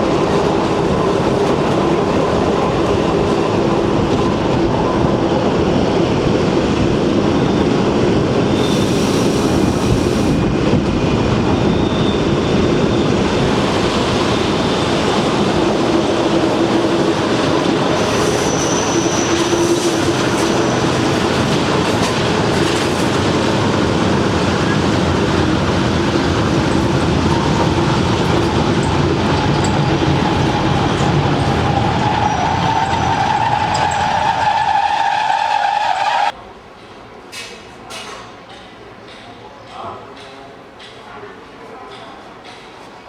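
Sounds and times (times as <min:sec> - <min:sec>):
train rail and wheel noise: 0:00.0 - 0:43.0
high-pitched wheel squeals: 0:18.0 - 0:21.0, 0:29.4 - 0:36.3.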